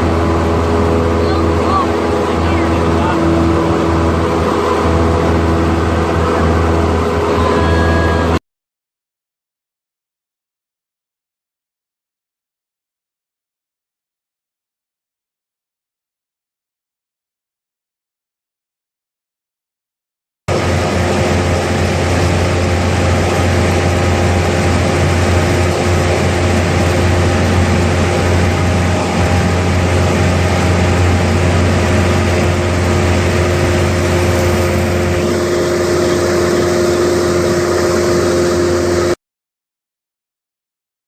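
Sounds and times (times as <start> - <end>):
propeller plane engine drone: 0.0 - 8.4, 20.5 - 39.2.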